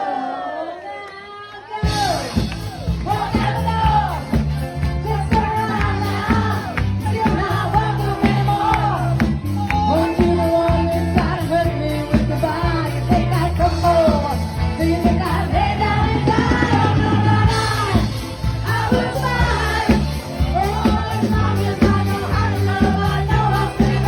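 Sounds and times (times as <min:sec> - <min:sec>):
person singing: 0:00.0 - 0:24.0
bass guitar: 0:01.8 - 0:24.0
steady drum beat: 0:01.8 - 0:24.0.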